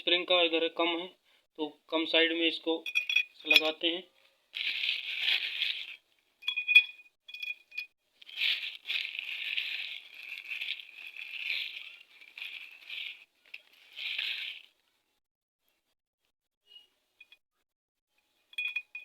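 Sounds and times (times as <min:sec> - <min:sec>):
ringing metal clinks: 0:02.9 - 0:03.8, 0:06.4 - 0:07.9, 0:18.6 - 0:19.0
metal parts scraping and rattling: 0:04.6 - 0:14.8.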